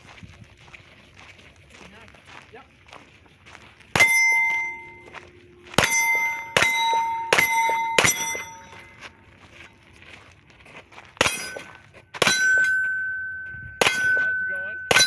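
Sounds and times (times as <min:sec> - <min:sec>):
steel plate ringing: 0:04.0 - 0:09.2, 0:11.2 - 0:15.0
pistol shots: 0:05.8 - 0:08.8, 0:11.2 - 0:13.0, 0:13.8 - 0:15.0.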